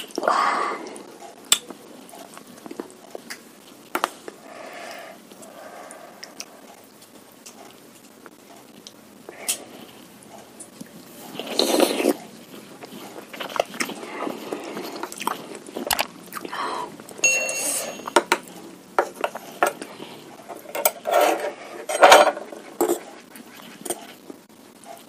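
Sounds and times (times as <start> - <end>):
person chewing food: 0.0 - 17.2, 18.0 - 20.7, 22.4 - 25.0
spoon clinking against bowl: 17.2 - 18.2.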